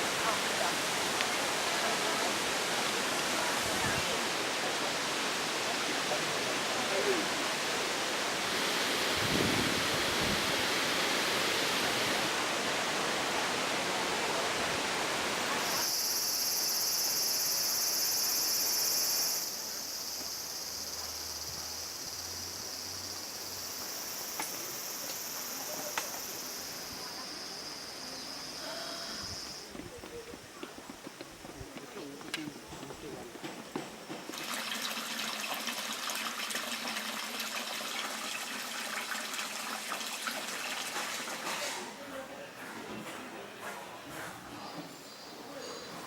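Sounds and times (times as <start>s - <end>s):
high-pitched insect drone: 15.6s - 29.7s.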